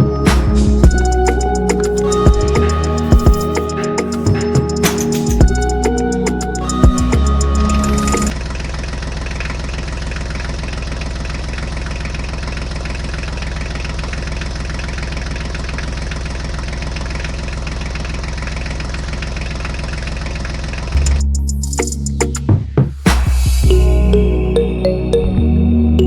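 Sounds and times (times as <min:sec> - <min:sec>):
music: 0:00.0 - 0:08.3, 0:21.0 - 0:26.0.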